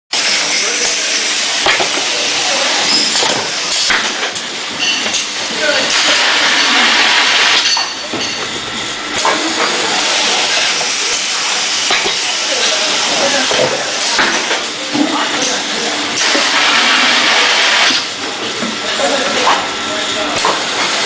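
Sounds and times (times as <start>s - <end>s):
packing machine running: 0.2s - 21.0s
hissing air bursts: 5.8s - 7.6s, 16.0s - 18.1s.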